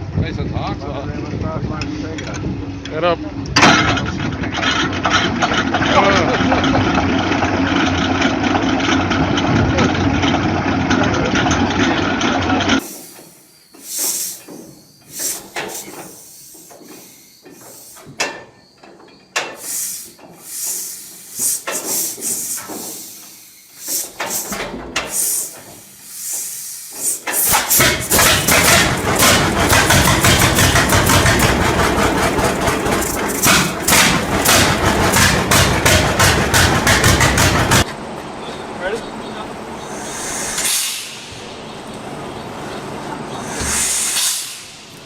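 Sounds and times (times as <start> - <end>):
old tractor engine running: 1.3 - 13.4, 23.8 - 45.0
irregular knocks and clicks: 27.6 - 38.0.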